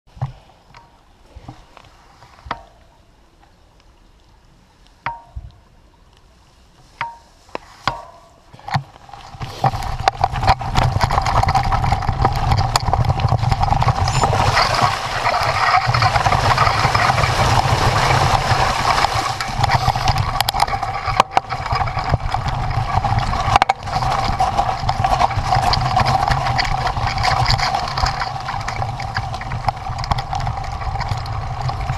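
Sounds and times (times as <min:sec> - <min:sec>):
mid-pitched hum: 0:00.1 - 0:31.9
deep rumble: 0:08.9 - 0:31.9.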